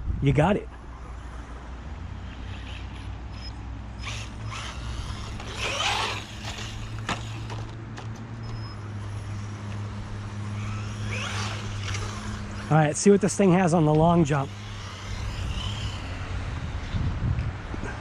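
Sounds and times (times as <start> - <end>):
steady low hum: 0.0 - 18.0
brief motor whir: 2.2 - 12.8, 13.6 - 17.2
rc car clicking and creaking: 2.2 - 17.6.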